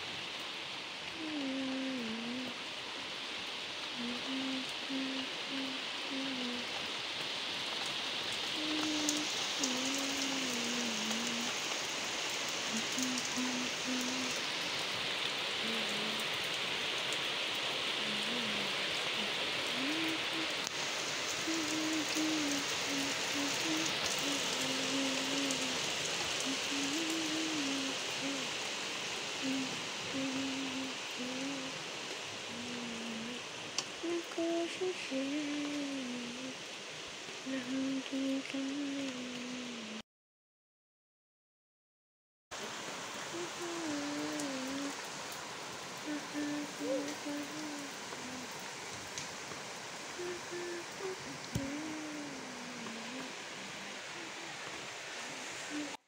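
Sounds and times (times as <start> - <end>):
rain on concrete: 0.0 - 40.0, 42.5 - 56.0
person humming: 1.1 - 2.7, 3.9 - 6.8, 8.5 - 11.7, 12.6 - 14.6, 15.6 - 16.4, 17.9 - 28.7, 29.3 - 31.8, 32.4 - 36.7, 37.4 - 40.0, 43.3 - 45.0, 46.0 - 48.6, 50.1 - 56.0.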